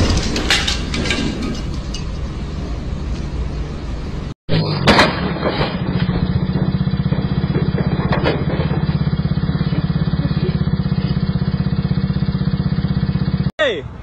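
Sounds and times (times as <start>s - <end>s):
dirt bike engine idling: 5.8s - 13.5s.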